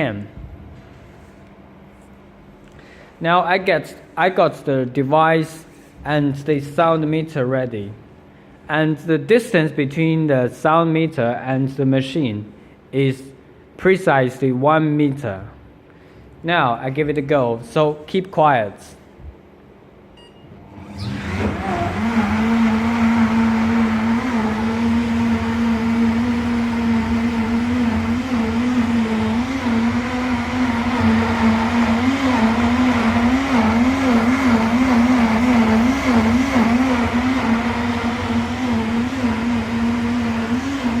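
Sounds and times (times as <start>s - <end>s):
blender motor whirring: 20.6s - 41.0s.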